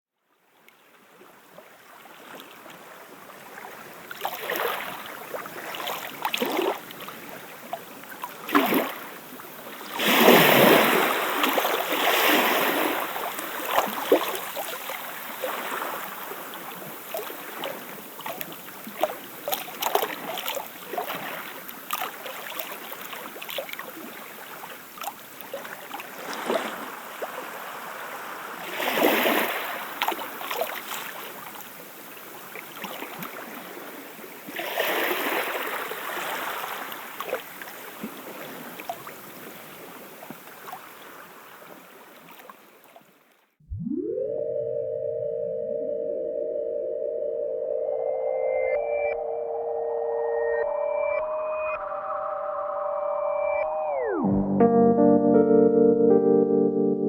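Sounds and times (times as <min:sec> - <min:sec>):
water lapping at a shoreline: 0:00.5 - 0:43.5
small splashes and clicks: 0:18.2 - 0:24.0.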